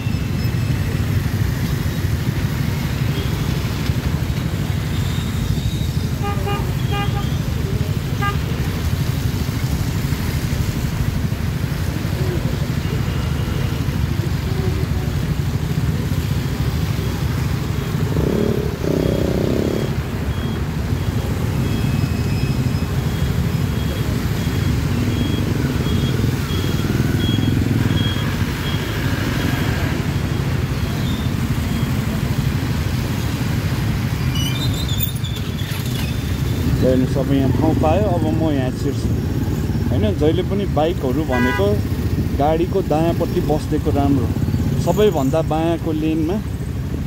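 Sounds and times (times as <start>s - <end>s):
vehicle engines idling: 0.0s - 47.0s
car horn honk: 6.2s - 7.4s, 41.2s - 41.7s.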